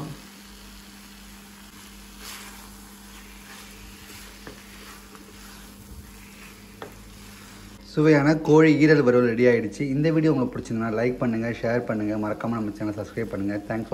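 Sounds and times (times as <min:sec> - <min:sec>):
food sizzling in a pan: 0:00.0 - 0:08.9, 0:10.7 - 0:13.9
steady low hum: 0:00.0 - 0:13.9
wooden spatula scraping: 0:01.7 - 0:09.2.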